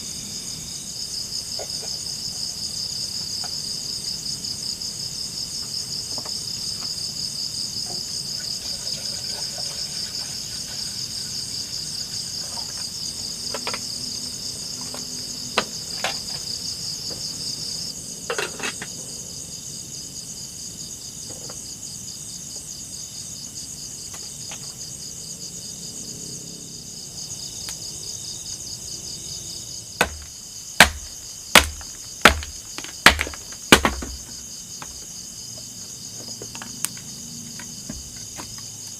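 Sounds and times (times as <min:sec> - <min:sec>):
insects chirring: 0:00.0 - 0:38.9
sharp knocks: 0:30.0 - 0:35.0.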